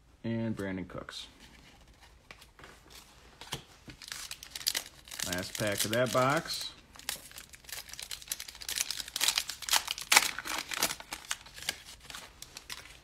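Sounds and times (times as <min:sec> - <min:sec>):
foil wrapper tearing and crinkling: 0:04.0 - 0:13.0.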